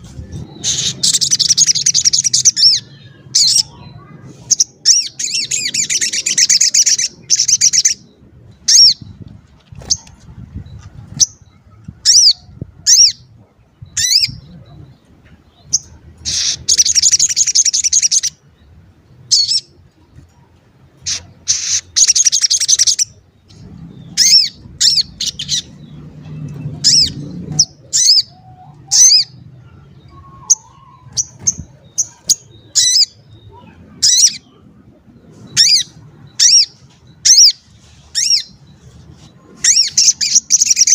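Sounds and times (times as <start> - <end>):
bird chirping: 0.0 - 40.9
bird chattering: 21.0 - 23.2, 39.6 - 40.9.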